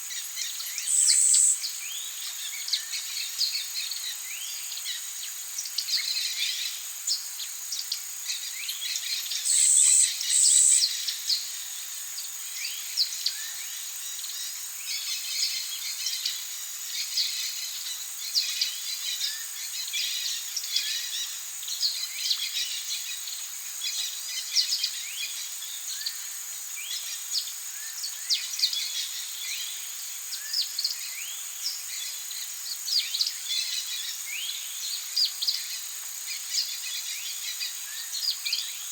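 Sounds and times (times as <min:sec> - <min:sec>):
high-pitched insect drone: 0:00.2 - 0:01.7, 0:09.3 - 0:11.0
birds chirping and calling: 0:00.6 - 0:01.7, 0:09.2 - 0:11.0.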